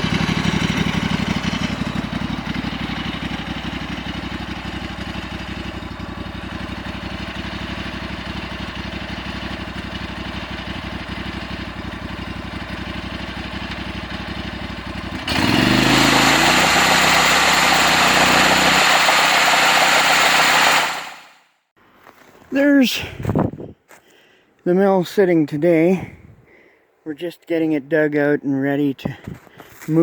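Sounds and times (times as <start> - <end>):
sawmill engine idling and revving: 0.0 - 21.5.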